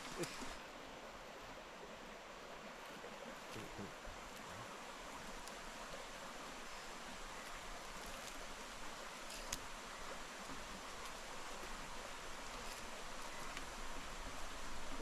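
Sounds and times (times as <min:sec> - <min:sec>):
river flowing: 0:00.0 - 0:15.0
faint clicks: 0:09.2 - 0:09.7, 0:12.4 - 0:13.7.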